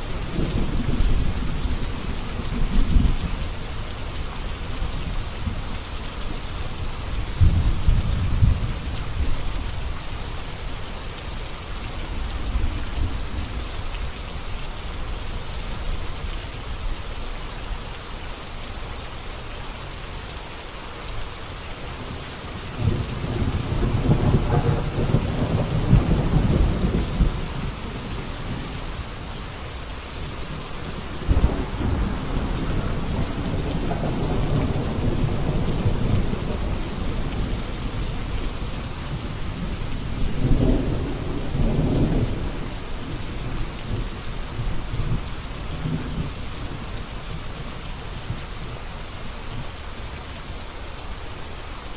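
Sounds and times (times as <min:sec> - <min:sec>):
steady rain: 0:00.0 - 0:51.9
thunder rolling: 0:21.9 - 0:29.2, 0:30.4 - 0:44.0.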